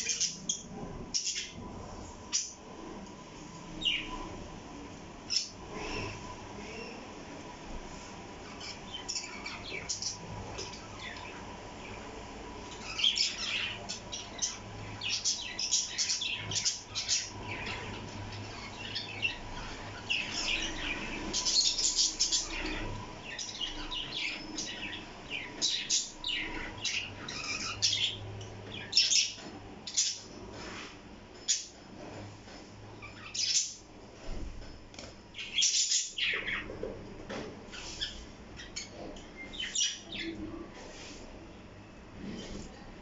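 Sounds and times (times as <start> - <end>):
parrot chirping: 0.0 - 1.6
parrots chirping: 0.0 - 1.6, 8.4 - 30.3, 33.0 - 33.9, 35.3 - 36.7, 37.7 - 40.4.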